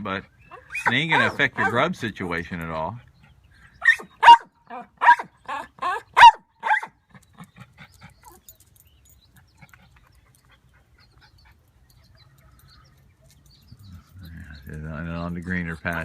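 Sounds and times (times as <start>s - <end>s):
dog barking and yipping: 0.5s - 1.9s, 3.8s - 7.0s.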